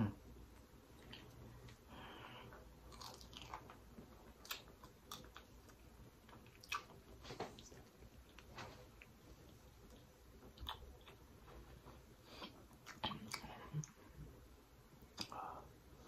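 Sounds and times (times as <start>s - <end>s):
mouth clicks and smacks: 2.9s - 11.2s, 15.0s - 15.4s
wet chewing: 2.9s - 11.2s.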